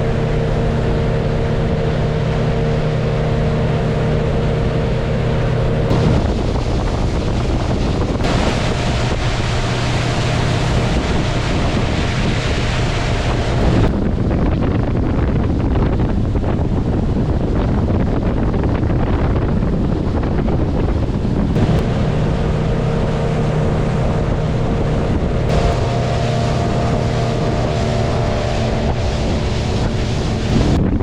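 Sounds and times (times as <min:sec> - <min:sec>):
humming tone: 0:00.0 - 0:14.3, 0:20.1 - 0:31.0
boat motor running: 0:00.0 - 0:31.0
wind buffeting microphone: 0:00.0 - 0:31.0.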